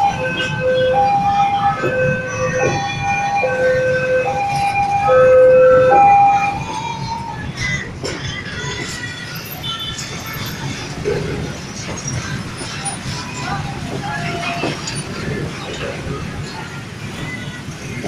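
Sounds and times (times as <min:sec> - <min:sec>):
two-tone electronic warning siren: 0:00.0 - 0:06.9.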